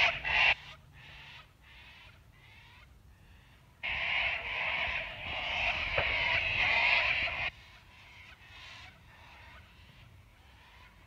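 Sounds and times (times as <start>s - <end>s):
faint bird calls: 0.0s - 11.0s
harsh bird screeching: 3.9s - 7.5s.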